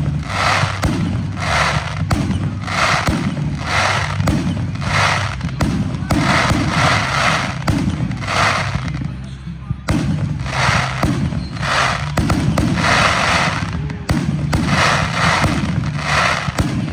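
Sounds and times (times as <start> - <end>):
fireworks bangs: 0.0 - 9.2, 9.9 - 16.9
fireworks crackling bursts: 0.0 - 9.2, 9.9 - 16.9
low rumble: 0.0 - 9.2.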